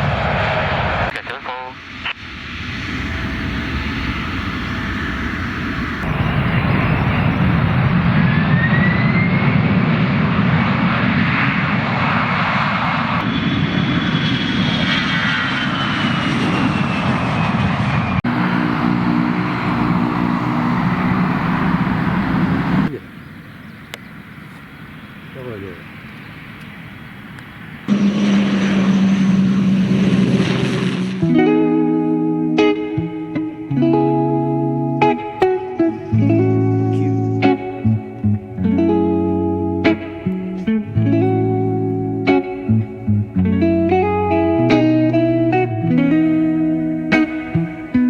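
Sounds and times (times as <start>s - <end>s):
airliner engines running: 0.0s - 33.0s
high engine whine: 0.0s - 33.1s.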